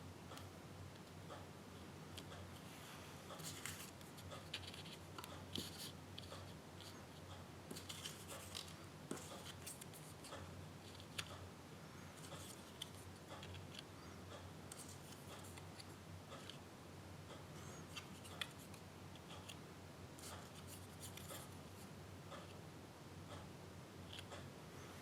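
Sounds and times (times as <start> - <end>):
paper rustling: 3.4 - 5.9.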